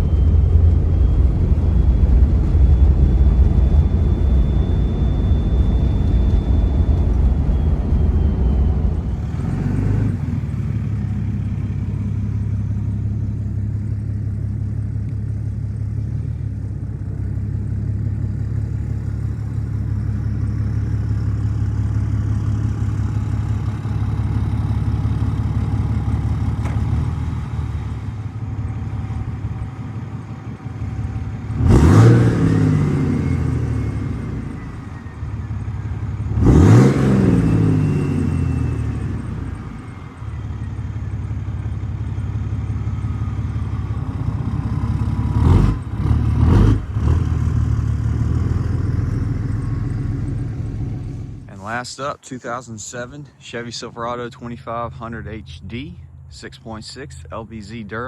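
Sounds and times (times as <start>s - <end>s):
turbo whistle: 0.0s - 10.2s, 31.7s - 41.0s
diesel engine idling and revving: 0.0s - 58.0s.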